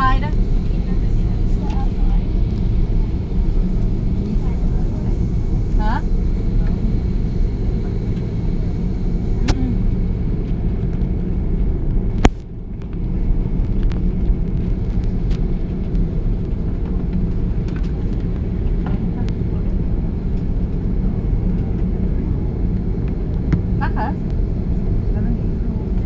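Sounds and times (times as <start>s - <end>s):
airliner cabin engine rumble: 0.0s - 26.0s.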